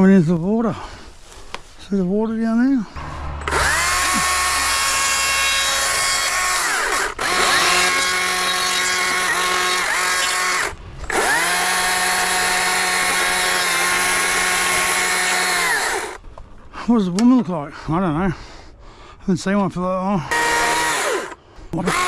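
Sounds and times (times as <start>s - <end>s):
power tool whining: 3.0s - 16.2s, 20.3s - 22.0s.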